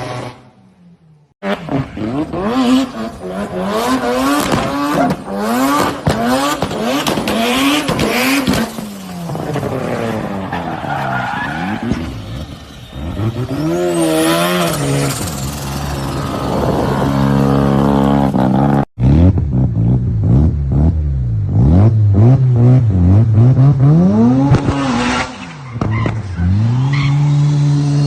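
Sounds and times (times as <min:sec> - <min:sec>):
tyre squeal: 0:10.2 - 0:17.0.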